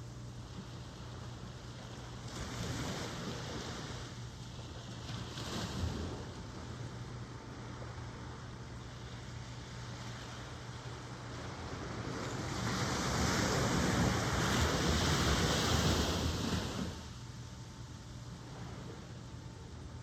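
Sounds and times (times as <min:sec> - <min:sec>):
ocean waves washing: 0:01.3 - 0:17.2.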